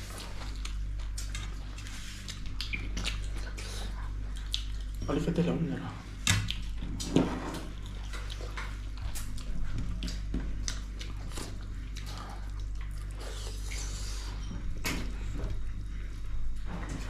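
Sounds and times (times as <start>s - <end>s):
mouth chewing and smacking: 0.0s - 5.1s, 6.2s - 14.8s
steady low hum: 0.0s - 17.0s.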